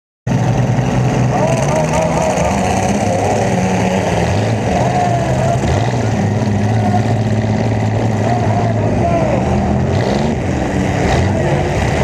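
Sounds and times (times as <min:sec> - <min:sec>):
car engine running loud: 0:00.3 - 0:12.0.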